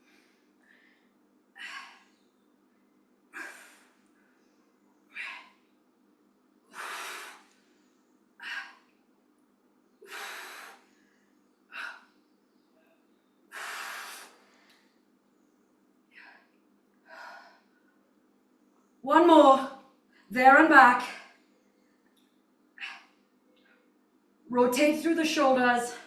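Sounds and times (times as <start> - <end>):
woman breathing hard: 0.0 - 2.2, 3.3 - 4.2, 5.1 - 5.6, 6.7 - 9.0, 10.0 - 12.3, 13.5 - 15.0, 16.1 - 17.8.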